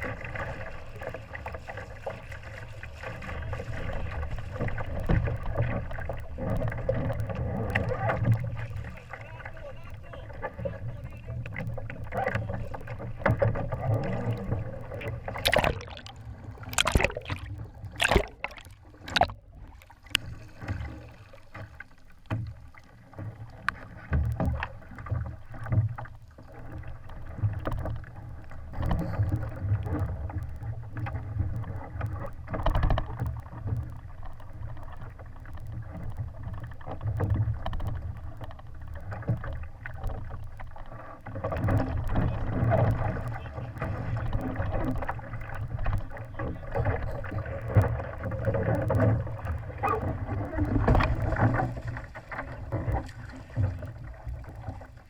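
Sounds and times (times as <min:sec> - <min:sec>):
water wash: 0:00.0 - 0:21.9, 0:41.5 - 0:55.0.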